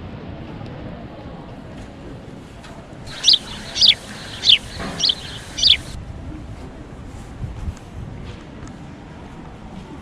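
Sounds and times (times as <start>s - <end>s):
low urban rumble: 0.0s - 10.0s
faint bird chirp: 3.1s - 6.0s.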